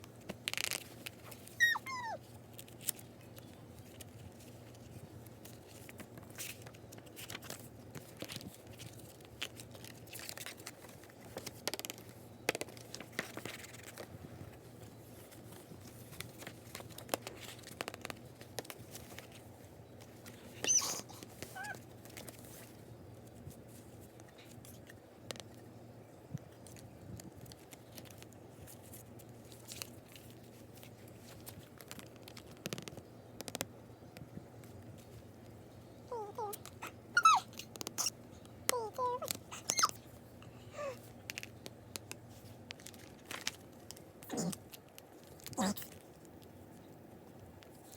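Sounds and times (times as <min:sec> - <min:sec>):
packaging crinkling and tearing: 0:00.4 - 0:14.0, 0:42.4 - 0:46.4
high squeaks with falling pitch: 0:01.6 - 0:02.2
small clicks and taps: 0:31.4 - 0:34.3.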